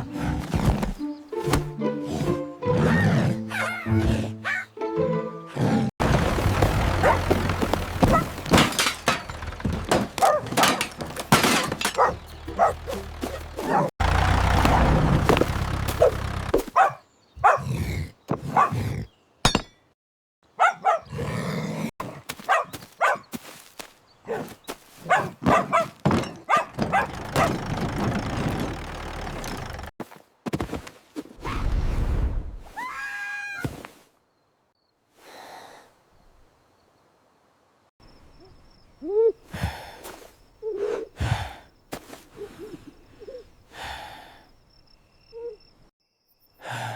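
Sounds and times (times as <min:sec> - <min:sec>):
cartoon dog barking: 0:02.8 - 0:04.8, 0:12.0 - 0:13.0, 0:13.6 - 0:13.9, 0:16.8 - 0:17.7, 0:20.6 - 0:21.1, 0:22.5 - 0:23.2, 0:25.1 - 0:27.6
crashing and thudding effects: 0:06.0 - 0:16.6.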